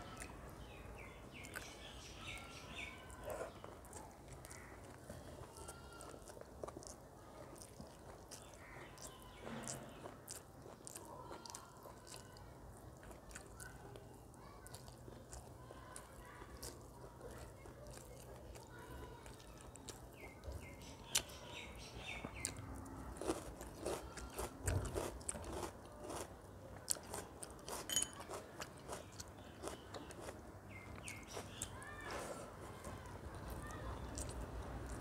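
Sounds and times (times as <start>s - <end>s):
chewing and crunching food: 0.0s - 35.0s.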